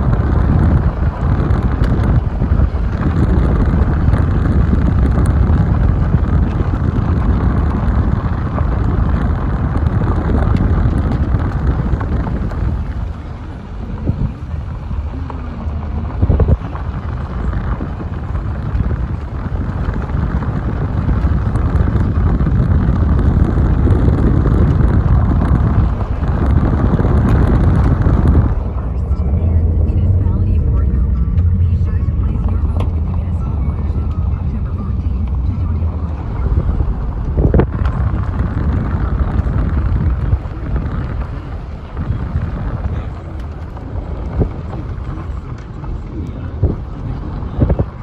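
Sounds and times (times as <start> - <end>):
car driving rumble: 0.0 - 48.0
wind buffeting microphone: 0.0 - 48.0.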